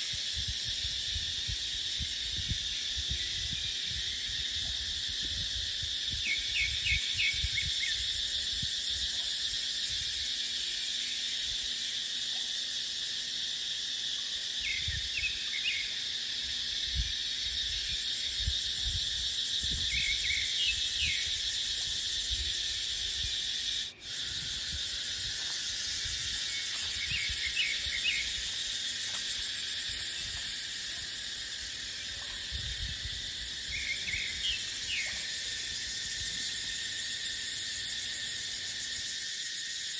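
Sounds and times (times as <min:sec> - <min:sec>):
wind on microphone: 0:00.0 - 0:09.1, 0:14.7 - 0:15.3, 0:16.7 - 0:23.5, 0:24.1 - 0:28.6, 0:32.1 - 0:35.2
cicadas chorus: 0:00.0 - 0:39.9.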